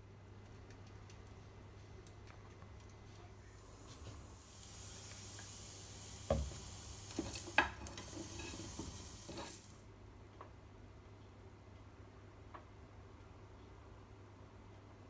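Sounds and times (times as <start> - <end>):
onions sizzling in a frying pan: 3.4 - 9.9.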